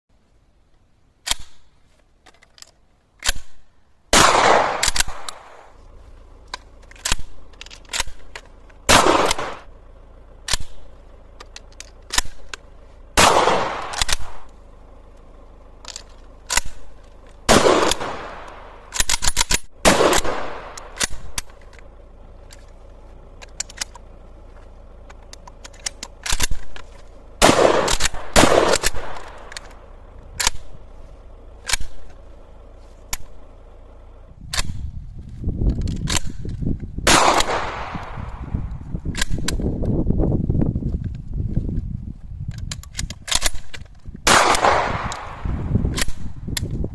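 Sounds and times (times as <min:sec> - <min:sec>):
gun clicks: 0:00.7 - 0:05.8, 0:06.4 - 0:32.4, 0:33.0 - 0:33.6, 0:34.5 - 0:40.0, 0:42.4 - 0:46.9
gunshots with echo: 0:04.1 - 0:05.7, 0:08.9 - 0:09.7, 0:13.2 - 0:14.4, 0:17.5 - 0:18.8, 0:19.8 - 0:21.2, 0:27.4 - 0:29.5, 0:37.1 - 0:38.5, 0:44.3 - 0:45.6.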